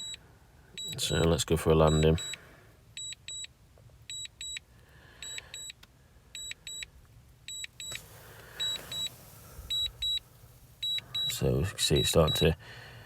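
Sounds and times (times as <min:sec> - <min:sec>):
faint wind hiss: 0:07.2 - 0:13.0.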